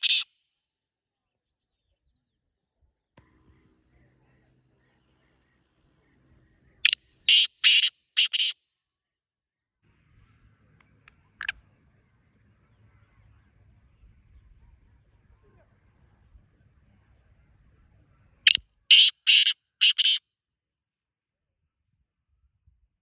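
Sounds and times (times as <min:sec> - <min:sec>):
francolin calling harsh notes: 0:00.0 - 0:00.2, 0:18.9 - 0:20.2.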